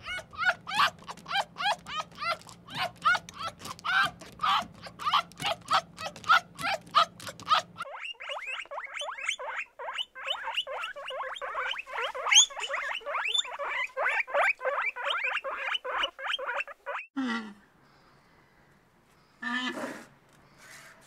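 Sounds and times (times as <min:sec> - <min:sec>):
animal squeaking calls: 0:00.0 - 0:17.1.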